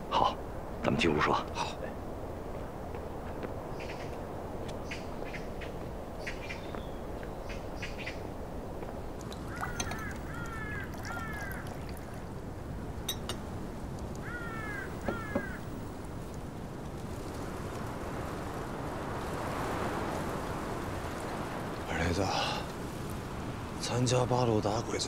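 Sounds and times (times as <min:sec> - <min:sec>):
background hiss: 0:00.0 - 0:25.0
bird calls: 0:03.6 - 0:08.3, 0:09.3 - 0:12.2, 0:14.2 - 0:15.8.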